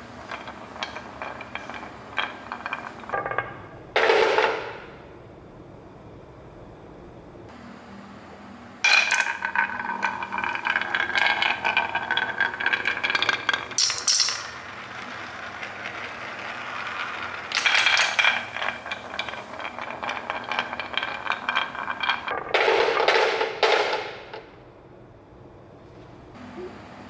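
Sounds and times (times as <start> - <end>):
small hard objects rattling: 9.0 - 22.3.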